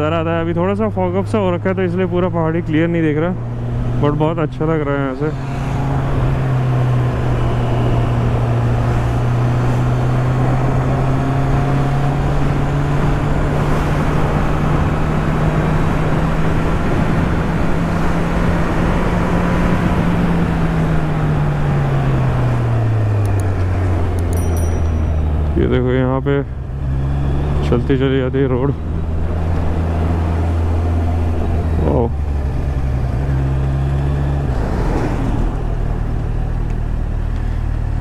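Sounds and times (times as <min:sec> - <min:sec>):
wind and road noise: 0:00.0 - 0:38.0
motorcycle engine running: 0:23.2 - 0:27.5.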